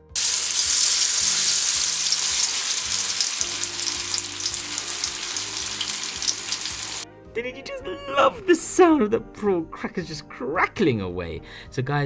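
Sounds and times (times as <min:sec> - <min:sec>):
coating crackling: 0:00.0 - 0:07.0
food sizzling in hot oil: 0:00.0 - 0:07.0.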